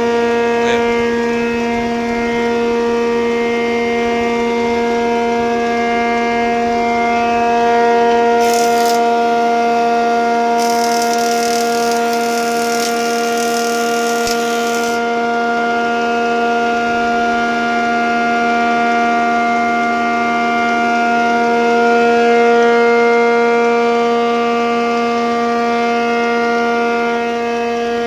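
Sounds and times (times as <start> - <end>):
planer high-pitched whine: 0.0 - 17.7
hiss: 10.6 - 15.0.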